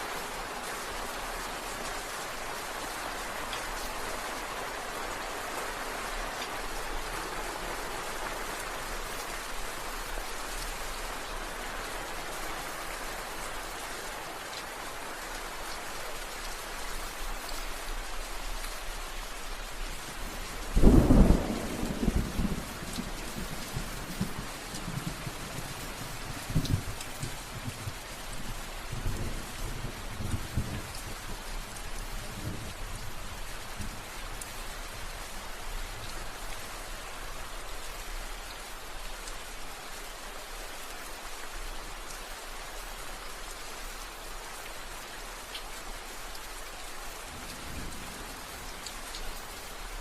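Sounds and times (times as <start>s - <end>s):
steady rain falling: 0.0s - 50.0s
loud thunderclap rumbling: 20.8s - 22.8s.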